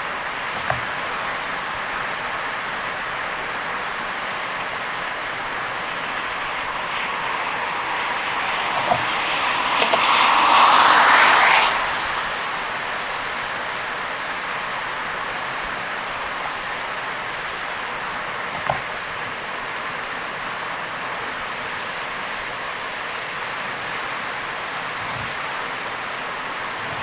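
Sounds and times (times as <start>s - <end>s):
tyre spray on wet road: 0.0s - 27.0s
heavy rain: 1.2s - 15.6s.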